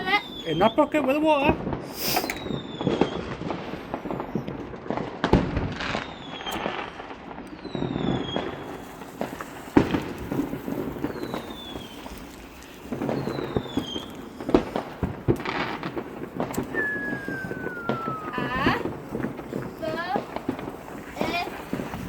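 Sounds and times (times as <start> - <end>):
firework whistles falling in pitch: 0.0 - 1.0, 1.9 - 3.3, 5.8 - 6.9, 7.5 - 15.0, 15.6 - 20.6
firework bangs: 0.0 - 22.0
firework crackling: 0.0 - 22.0.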